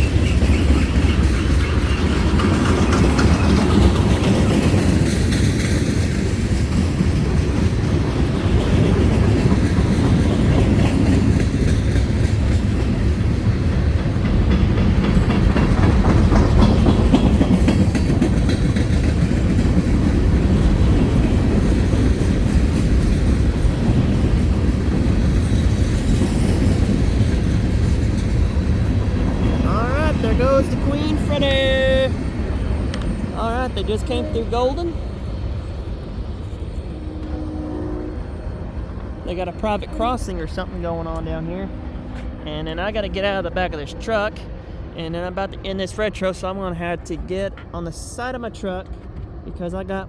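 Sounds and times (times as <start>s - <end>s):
wheels clacking over rail joints: 0.0s - 37.4s
freight train rumbling past: 0.0s - 50.0s.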